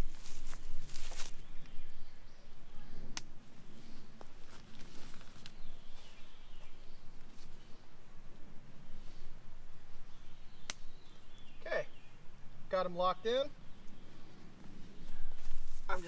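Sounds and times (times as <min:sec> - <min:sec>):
tent fabric rustling: 0:00.0 - 0:01.4, 0:15.0 - 0:16.0.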